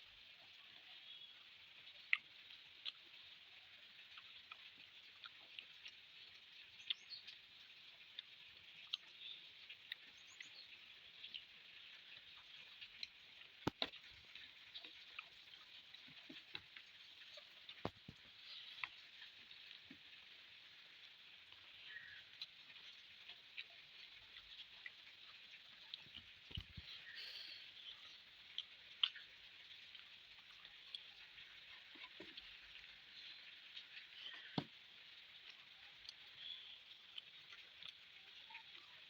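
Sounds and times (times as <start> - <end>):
person chewing food: 2.0 - 38.1
wet mouth clicks and smacks: 13.0 - 14.0
faint hiss: 26.5 - 28.3.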